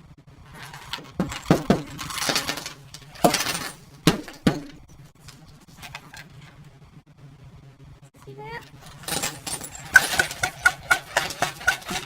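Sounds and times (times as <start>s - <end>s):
broken glass and plastic clinking: 0.6s - 4.9s, 8.8s - 12.0s.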